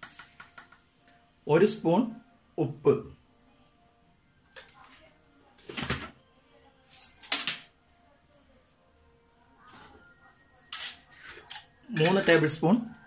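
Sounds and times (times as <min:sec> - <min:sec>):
spoon and dishes clinking: 0:06.8 - 0:07.7, 0:10.6 - 0:12.9.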